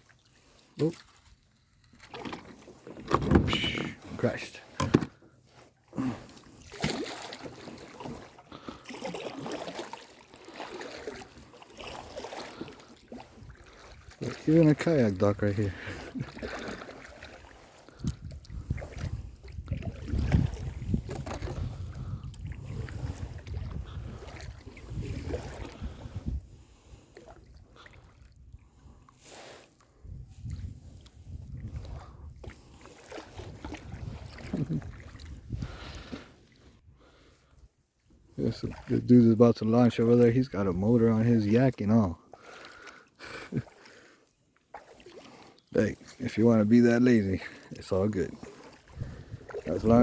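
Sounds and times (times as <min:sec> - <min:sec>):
water splashing around kayak: 0:00.0 - 0:50.0
rushing paddle stroke: 0:02.0 - 0:17.9, 0:46.0 - 0:50.0
wind buffeting microphone: 0:17.9 - 0:26.8, 0:30.0 - 0:32.4, 0:33.4 - 0:36.1, 0:48.9 - 0:50.0.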